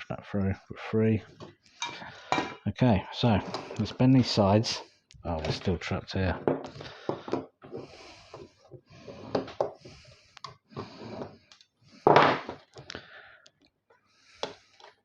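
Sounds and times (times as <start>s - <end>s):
loud rasping metal scrape: 3.2s - 4.8s.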